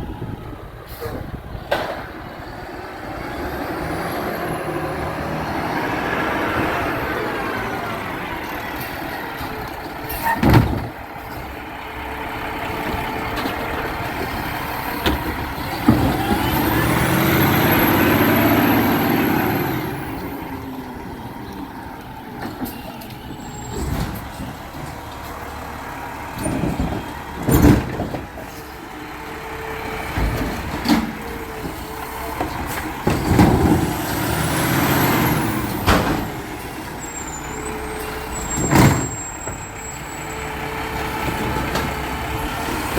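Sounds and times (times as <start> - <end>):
garbage truck engine revving: 0.0 - 42.9
air brakes hissing: 0.8 - 1.5.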